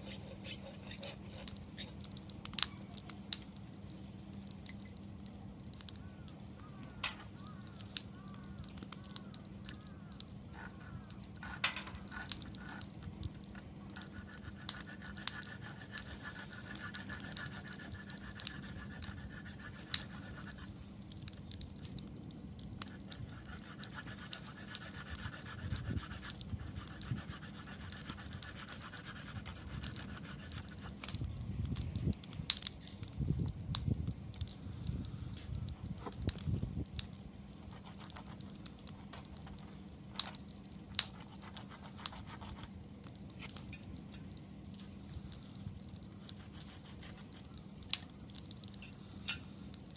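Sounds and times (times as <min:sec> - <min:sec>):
campfire crackles and pops: 0:00.0 - 0:49.9.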